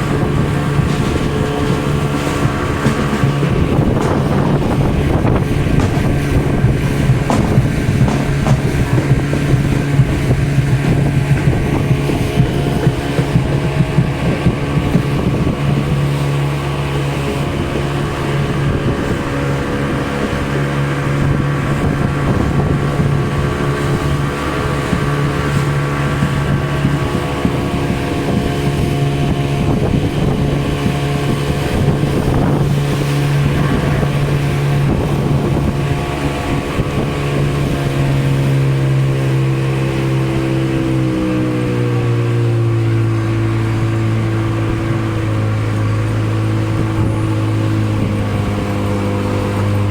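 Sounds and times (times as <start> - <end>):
boat engine humming: 0.0 - 49.9.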